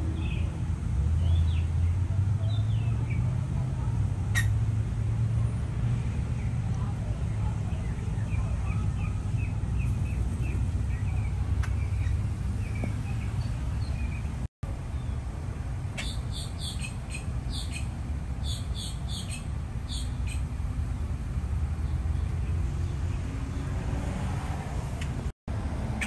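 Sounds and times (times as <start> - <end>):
street traffic rumble: 0.0 - 26.0
birds chirping: 6.4 - 15.2, 15.9 - 23.8.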